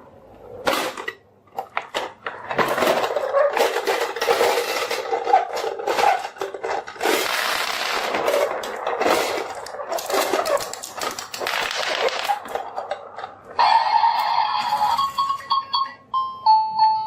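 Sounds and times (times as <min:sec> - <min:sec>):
marbles clattering down marble run: 0:01.7 - 0:15.5.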